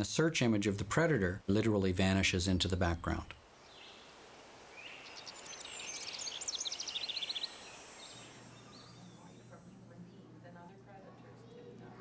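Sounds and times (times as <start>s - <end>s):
faint steady low hum: 0.0s - 12.0s
soft background hiss: 0.0s - 12.0s
small bird chirping: 4.7s - 9.7s.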